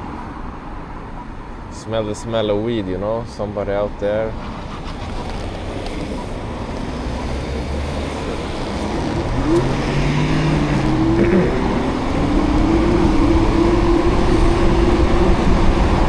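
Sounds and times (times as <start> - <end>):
tyres on a wet road: 0.0 - 16.0
vehicle engine hum: 3.9 - 16.0
wind rumble: 4.8 - 16.0.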